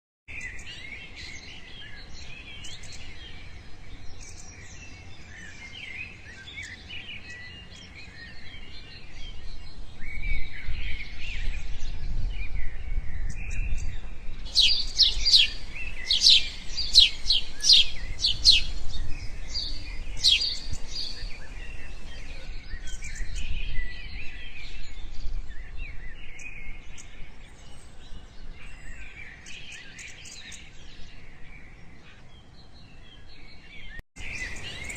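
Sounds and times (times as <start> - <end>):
small birds chirping: 0.3 - 34.9
loud sharp bird calls: 14.5 - 24.8, 34.2 - 34.9.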